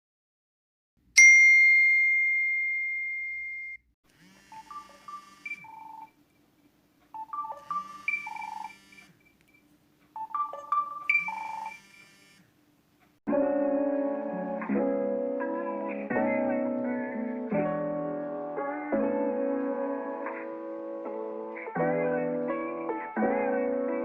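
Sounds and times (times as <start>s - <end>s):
electronic beeping ringtone: 4.5s - 6.2s, 7.2s - 9.2s, 10.2s - 12.4s.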